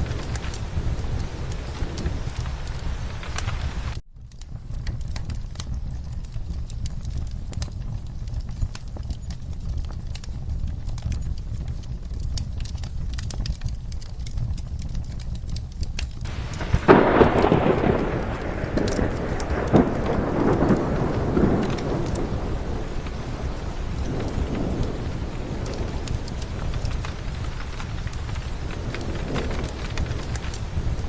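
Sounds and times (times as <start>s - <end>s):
thunder clap rumbling: 0.0s - 4.0s, 16.2s - 31.0s
fireplace crackling: 0.0s - 31.0s
steady rain: 0.0s - 31.0s.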